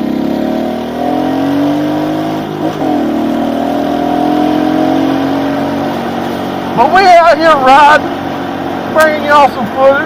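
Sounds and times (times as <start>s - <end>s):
motorbike engine revving: 0.0s - 7.0s.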